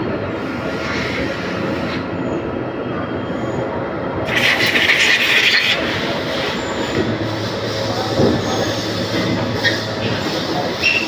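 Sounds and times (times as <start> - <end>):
lathe machine noise: 4.3 - 11.0
loud harsh hissing: 4.3 - 11.0.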